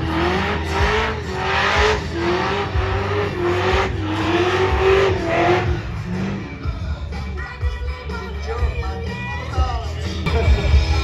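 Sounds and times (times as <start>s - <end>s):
car engine at high revs: 0.0s - 7.0s.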